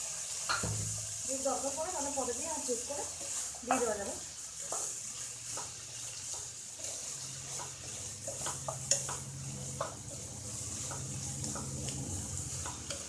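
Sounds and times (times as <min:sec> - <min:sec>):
food sizzling in a pan: 0:00.0 - 0:13.0
spatula scraping a pan: 0:02.0 - 0:13.0.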